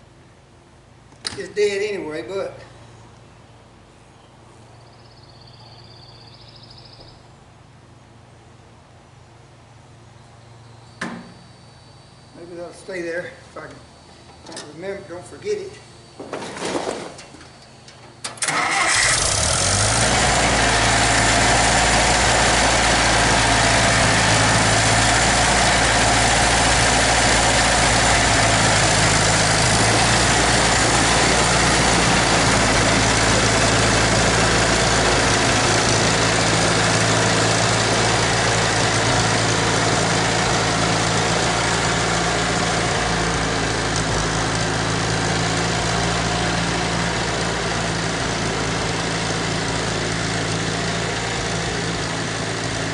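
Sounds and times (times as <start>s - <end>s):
tractor engine starting and idling: 16.2s - 52.9s.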